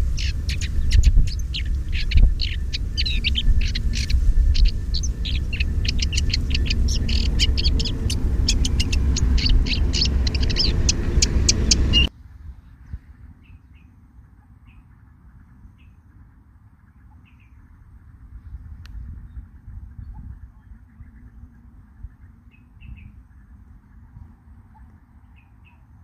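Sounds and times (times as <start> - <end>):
birds chirping: 0.0 - 12.1
loud low rumble: 0.0 - 12.1.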